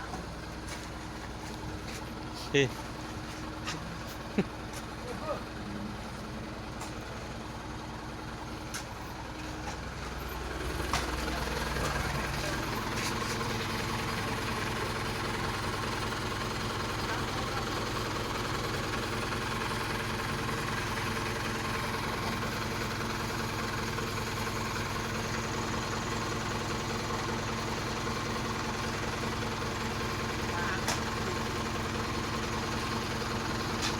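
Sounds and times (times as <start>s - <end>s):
truck engine idling: 0.0s - 33.9s.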